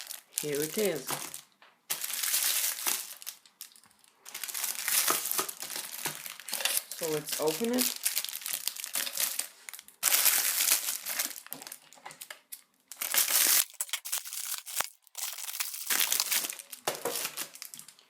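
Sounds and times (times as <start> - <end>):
packaging crinkling: 12.9 - 17.8.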